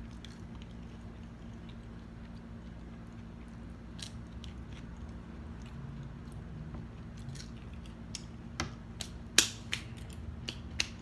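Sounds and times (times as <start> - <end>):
chewing fries: 0.0 - 11.0
steady low hum: 0.0 - 11.0.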